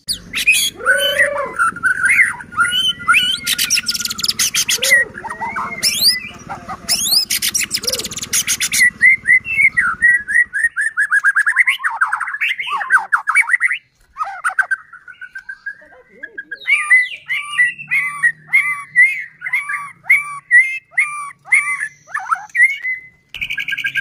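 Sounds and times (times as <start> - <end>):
rapid rattling bird notes: 0.0 - 24.0
songbird singing: 0.0 - 24.0.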